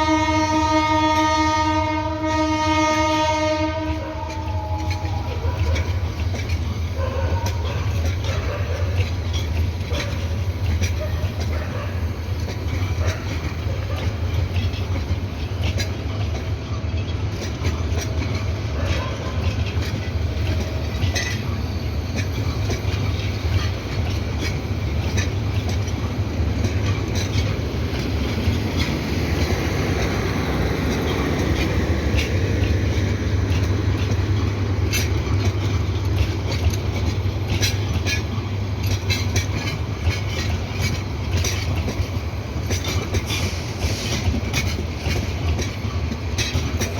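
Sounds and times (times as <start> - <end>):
train rumbling along track: 0.0 - 46.9
wheels clicking over rail joints: 0.1 - 46.9.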